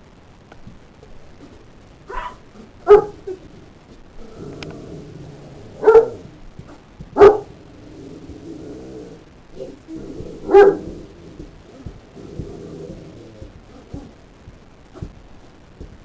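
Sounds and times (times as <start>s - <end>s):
dogs barking in a scuffle: 2.1s - 3.4s, 5.4s - 7.7s, 9.6s - 14.2s.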